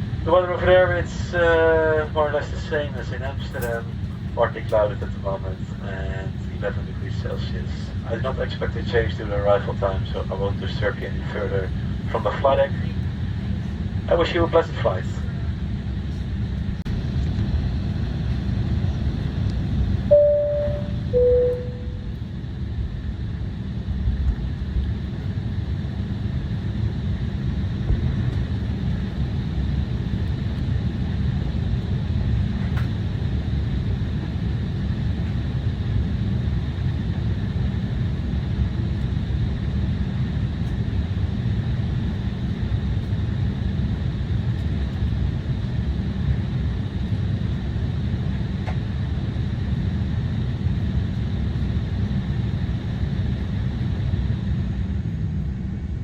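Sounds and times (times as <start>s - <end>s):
airliner cabin rumble: 0.0s - 56.0s
faint high whine: 20.1s - 22.5s.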